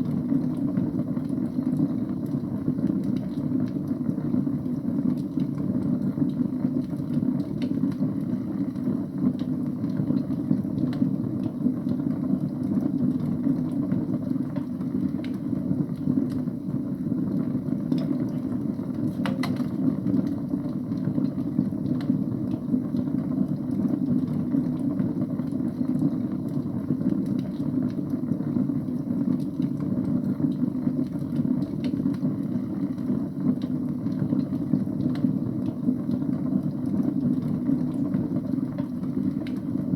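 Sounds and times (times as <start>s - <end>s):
fire crackles and pops: 0.0s - 39.9s
fire flames rumbling: 0.0s - 39.9s.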